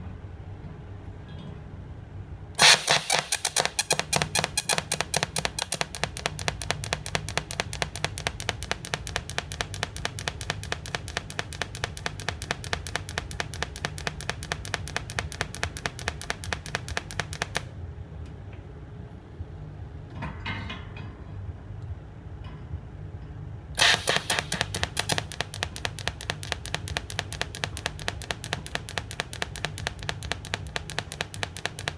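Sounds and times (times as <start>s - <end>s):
welder low hum: 2.6s - 17.7s, 23.8s - 31.9s
welder pulsing clicks: 2.6s - 17.7s, 23.8s - 31.9s
burst of noise: 23.8s - 26.4s.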